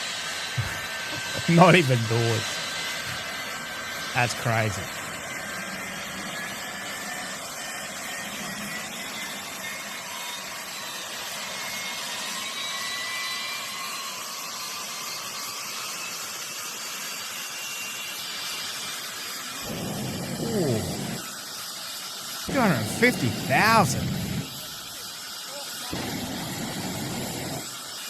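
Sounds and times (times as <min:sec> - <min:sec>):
jet engine running: 0:00.6 - 0:05.2, 0:19.6 - 0:21.2, 0:22.5 - 0:24.6, 0:26.0 - 0:27.7.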